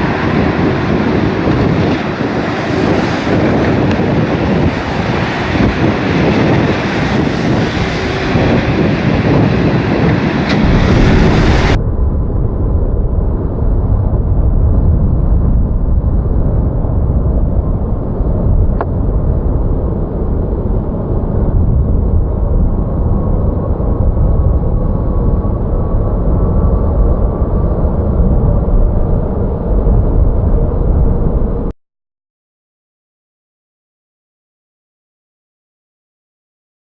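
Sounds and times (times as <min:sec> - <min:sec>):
strong wind buffeting microphone: 0:00.0 - 0:31.7
broad roar: 0:02.6 - 0:11.8.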